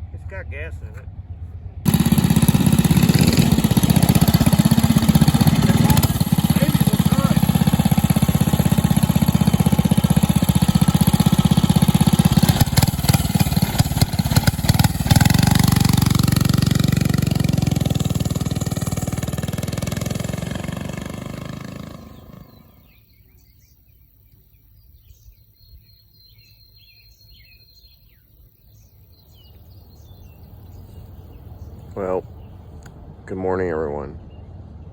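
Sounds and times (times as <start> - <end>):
birds chirping: 0.0 - 34.9
minibike engine running: 1.9 - 23.0.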